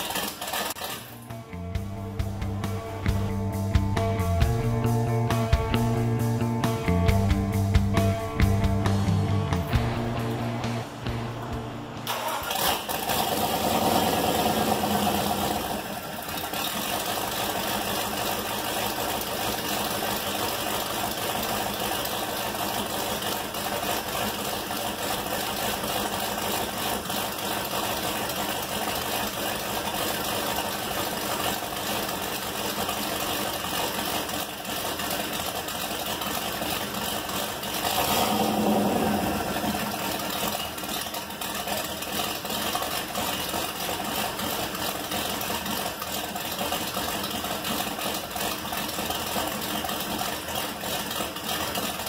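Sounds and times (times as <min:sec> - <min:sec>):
vee eight engine starting and idling: 0:00.0 - 0:52.0.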